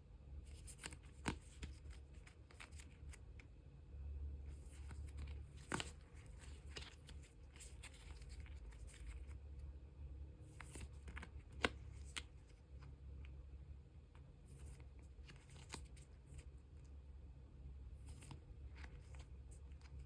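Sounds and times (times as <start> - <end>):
plastic sleeves rustling: 0.4 - 3.4, 4.5 - 9.4, 10.5 - 13.0, 14.4 - 16.9, 17.9 - 20.0.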